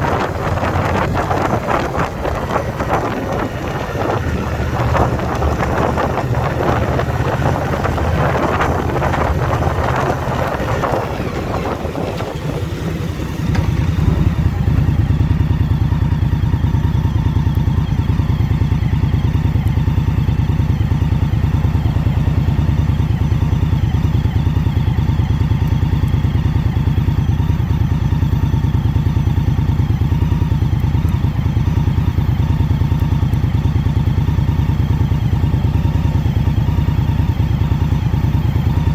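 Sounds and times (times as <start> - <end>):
wind rushing over microphone: 0.0 - 14.8
motorcycle engine running: 0.0 - 38.9.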